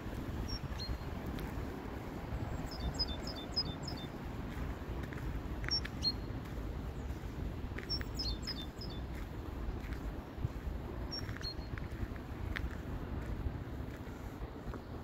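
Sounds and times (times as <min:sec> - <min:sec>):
wind rumble on microphone: 0:00.0 - 0:15.0
small birds chirping: 0:00.3 - 0:10.4, 0:11.0 - 0:12.1.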